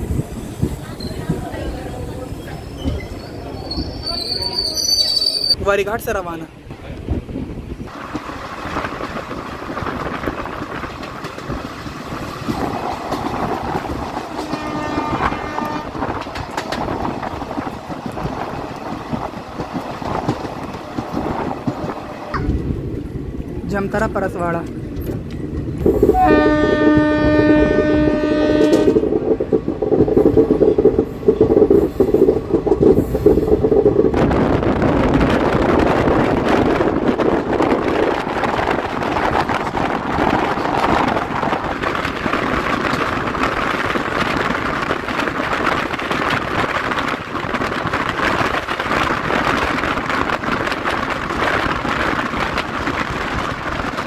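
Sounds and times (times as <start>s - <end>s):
train wheels clattering over rails: 7.9s - 54.0s
train horn: 14.4s - 16.0s, 26.1s - 29.0s.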